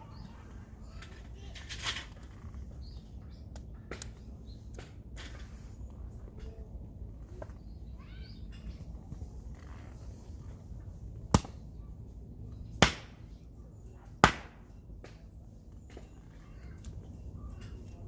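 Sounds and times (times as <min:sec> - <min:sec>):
sharp chopping blows: 0:12.8 - 0:13.2, 0:14.2 - 0:14.6.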